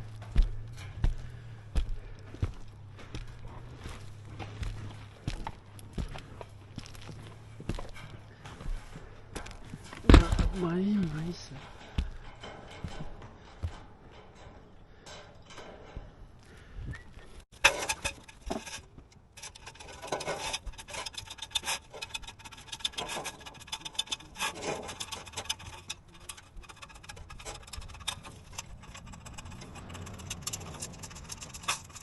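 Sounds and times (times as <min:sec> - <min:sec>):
rough scraping and rubbing: 0:17.4 - 0:32.0.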